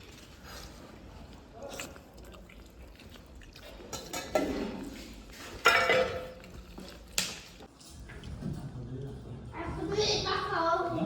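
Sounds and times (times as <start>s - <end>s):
dishes and cutlery clinking: 3.8s - 8.8s.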